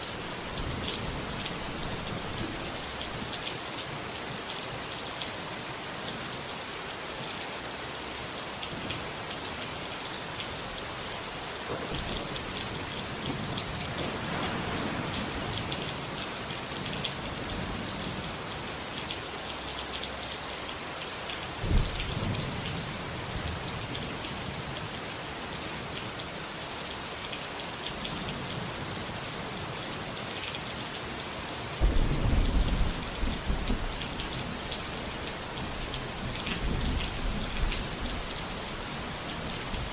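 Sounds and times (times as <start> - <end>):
steady rain: 0.0 - 39.9
thunder rumbling: 0.1 - 3.1, 11.9 - 17.8, 31.8 - 39.9
sharp thunder crack: 13.4 - 16.8, 31.8 - 34.0.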